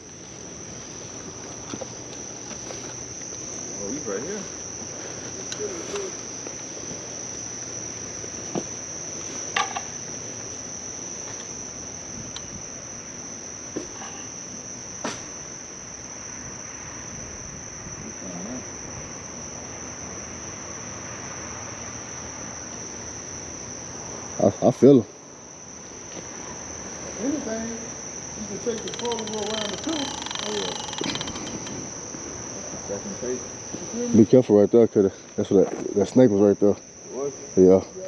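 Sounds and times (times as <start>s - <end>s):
crickets chirping chorus: 0.0s - 38.0s
faint clicks: 28.8s - 31.8s.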